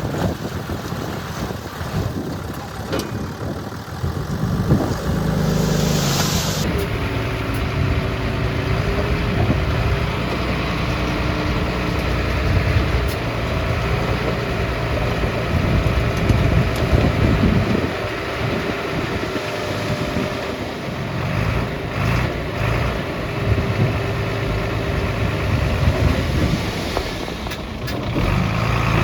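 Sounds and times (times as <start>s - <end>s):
heavy diesel engine running: 0.0s - 29.0s
brief hiss: 5.4s - 6.7s.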